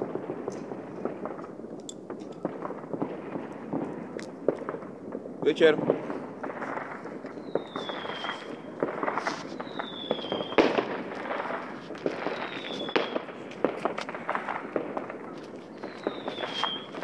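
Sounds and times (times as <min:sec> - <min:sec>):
fireworks bangs and crackles: 0:00.0 - 0:17.0
fireworks whistles sliding down: 0:06.7 - 0:13.3, 0:15.7 - 0:17.0.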